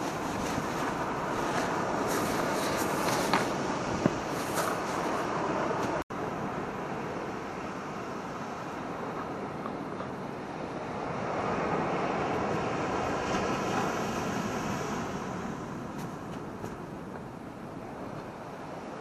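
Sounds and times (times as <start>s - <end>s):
wind buffeting microphone: 0.0s - 6.7s
surf washing: 0.0s - 19.0s.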